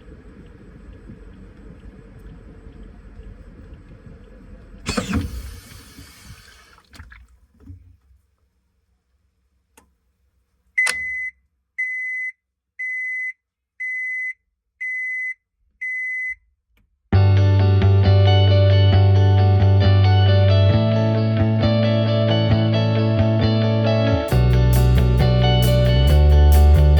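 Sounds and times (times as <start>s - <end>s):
washing machine running: 4.6s - 7.2s
washing machine beeps: 10.8s - 16.4s.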